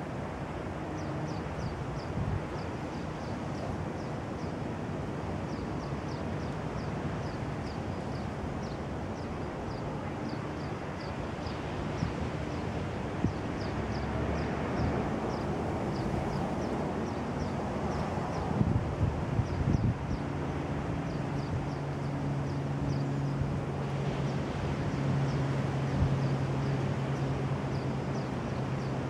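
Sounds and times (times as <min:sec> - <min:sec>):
outdoor rumble and hiss: 0:00.0 - 0:29.0.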